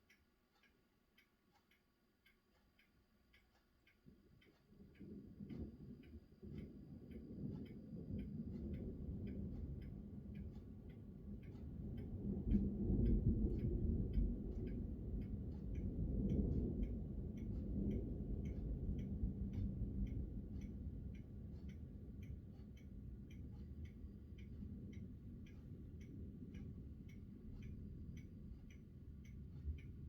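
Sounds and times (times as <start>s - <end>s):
steady ticking: 0.0s - 30.0s
rolling thunder: 5.2s - 21.2s.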